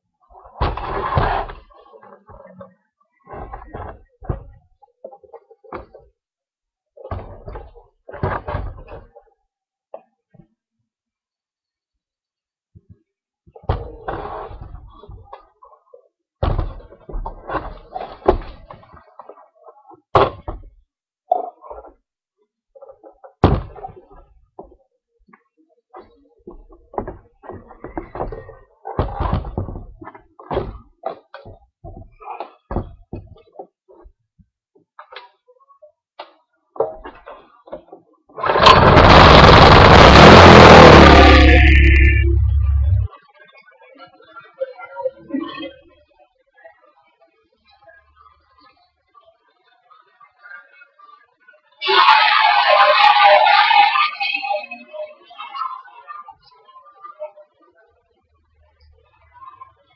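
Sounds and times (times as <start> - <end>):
small engine starting and running: 38.4 - 43.1.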